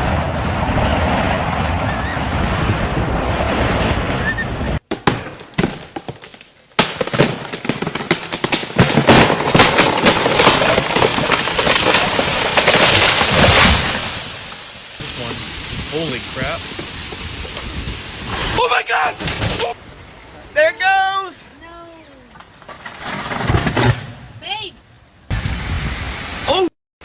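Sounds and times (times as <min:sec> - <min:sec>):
storm wind buffeting microphone: 0:00.0 - 0:04.8, 0:15.0 - 0:18.6
sharp cracks and knocks: 0:04.8 - 0:14.7.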